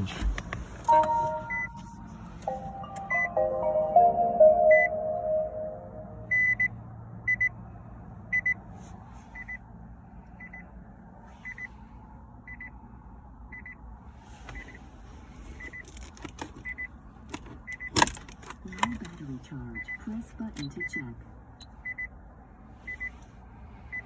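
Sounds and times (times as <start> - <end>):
electronic chord chime: 0.9 - 6.6
short high beeps: 0.9 - 6.7.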